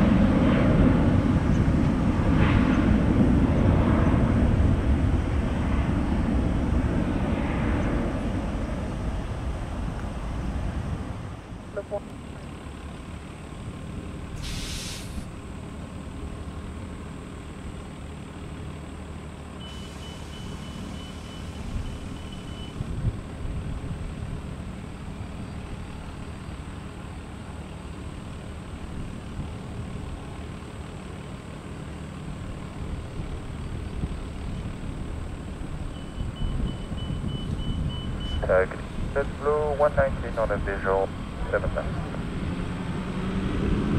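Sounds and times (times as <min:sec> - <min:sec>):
heavy traffic engine rumble: 0:00.0 - 0:43.9
air brake hiss: 0:14.4 - 0:15.3, 0:19.7 - 0:21.8.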